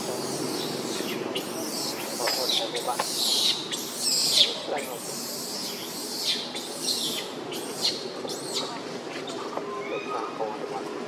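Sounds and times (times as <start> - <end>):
baby monkey crying: 0.0 - 8.7.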